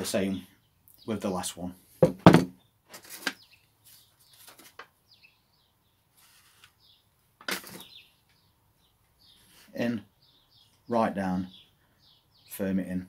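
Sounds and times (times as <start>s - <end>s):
bird chirps: 2.6s - 13.0s.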